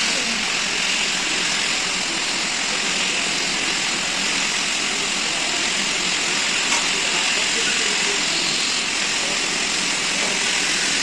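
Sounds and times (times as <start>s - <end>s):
workshop machinery hiss: 0.0s - 11.0s.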